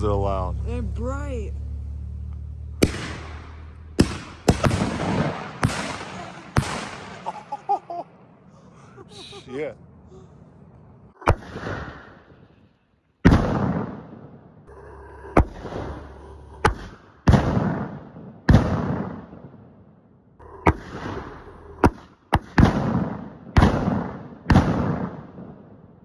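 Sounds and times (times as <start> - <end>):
firework bangs echoing: 2.8 - 7.6, 11.2 - 12.5, 13.2 - 19.8, 20.4 - 25.8.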